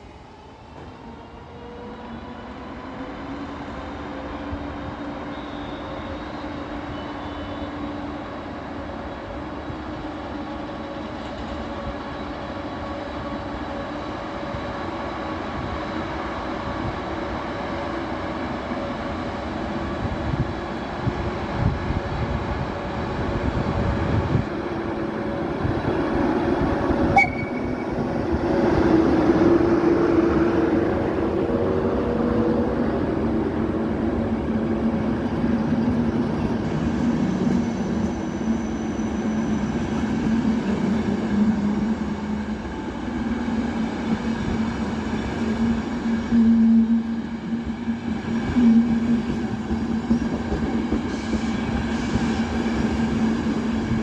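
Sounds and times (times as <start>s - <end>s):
electric locomotive hum: 6.5s - 54.0s.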